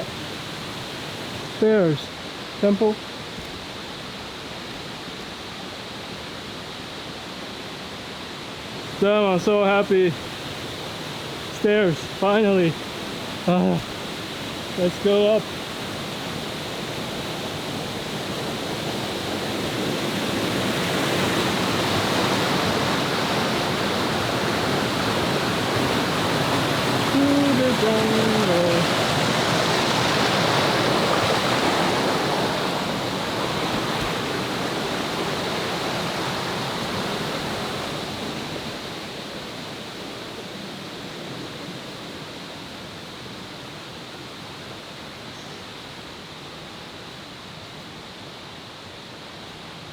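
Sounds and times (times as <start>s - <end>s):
river water rushing: 0.0s - 49.9s.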